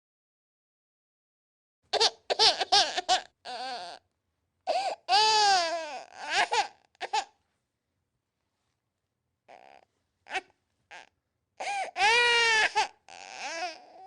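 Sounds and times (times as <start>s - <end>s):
baby crying: 2.0s - 4.0s, 4.7s - 7.4s, 9.5s - 14.0s.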